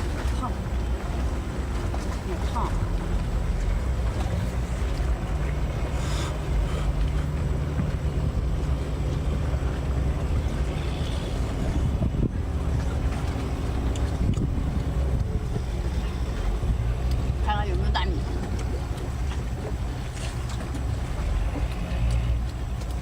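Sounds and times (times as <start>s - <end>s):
engine humming: 0.0s - 23.0s
wind noise on microphone: 10.3s - 17.4s.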